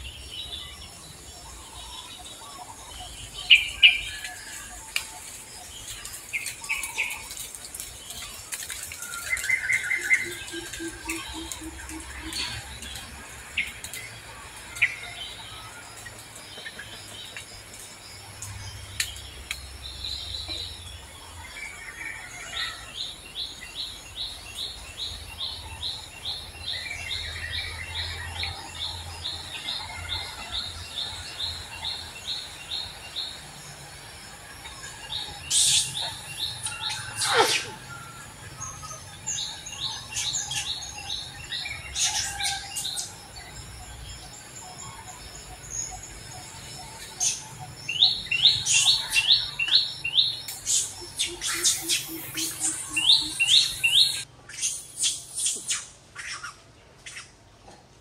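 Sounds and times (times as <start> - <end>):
sweeping bird calls: 0.0 - 17.4, 34.6 - 57.4.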